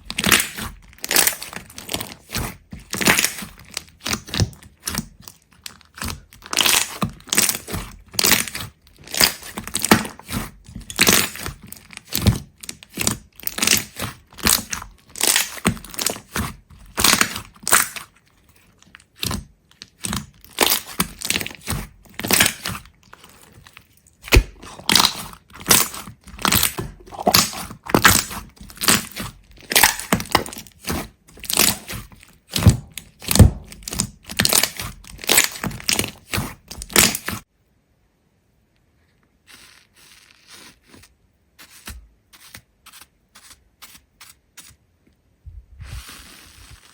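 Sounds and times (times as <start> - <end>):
brittle cracking and crunching: 0.0 - 37.5.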